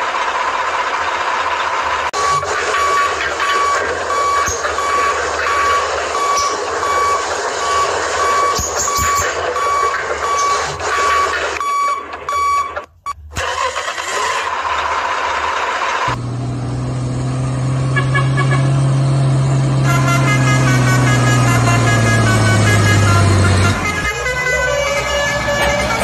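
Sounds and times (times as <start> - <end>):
heavy truck engine droning: 0.0 - 26.0
road noise: 0.0 - 26.0
truck reversing alarm beeps: 2.2 - 13.7, 19.9 - 26.0.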